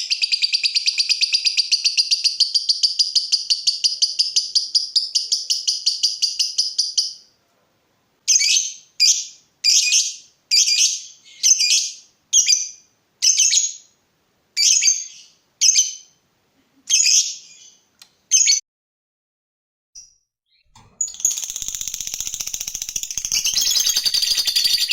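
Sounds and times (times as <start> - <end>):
shrill bird chirps: 0.0 - 7.3, 8.3 - 13.9, 14.6 - 16.2, 20.5 - 24.9
bird trilling: 21.0 - 24.9.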